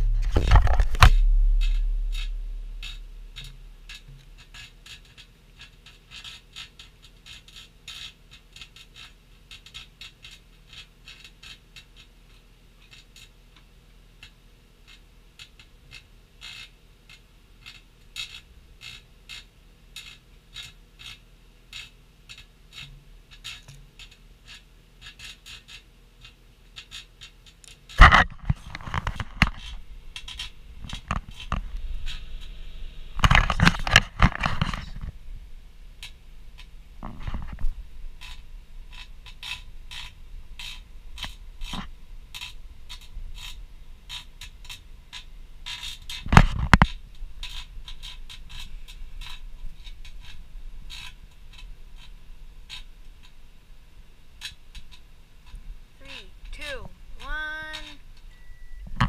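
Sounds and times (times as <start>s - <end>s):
sudden loud noise: 0.0s - 3.9s
loud low hum: 0.0s - 4.3s
small crackles and ticks: 0.0s - 35.2s, 35.8s - 58.3s.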